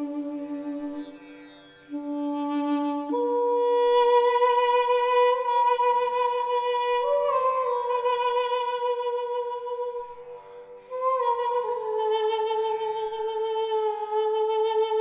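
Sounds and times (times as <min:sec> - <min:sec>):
flute-like wind instrument: 0:10.9 - 0:15.0.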